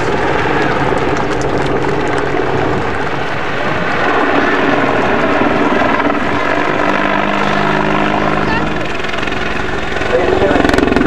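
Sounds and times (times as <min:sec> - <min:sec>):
helicopter rotor and turbine: 0:00.0 - 0:11.0.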